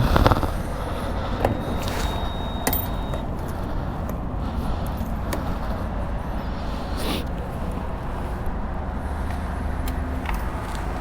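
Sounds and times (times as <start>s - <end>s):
vehicles rumbling: 0.0s - 11.0s
short high beep: 1.6s - 3.4s.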